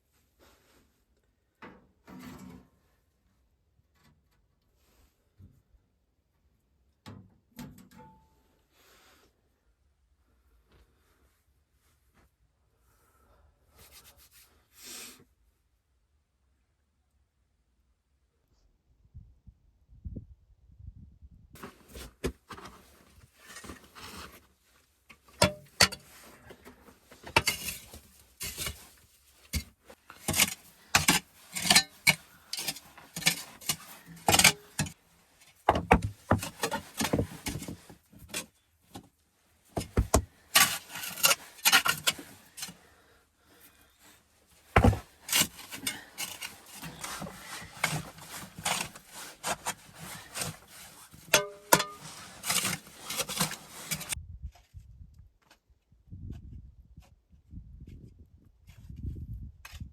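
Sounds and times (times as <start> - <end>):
handling knocks and scrapes: 21.6 - 43.0, 43.6 - 54.8.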